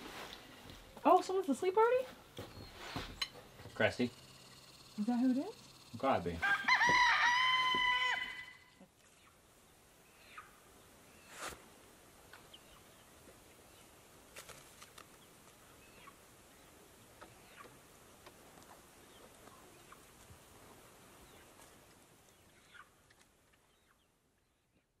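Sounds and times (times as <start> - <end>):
bird chirps: 2.4 - 6.2.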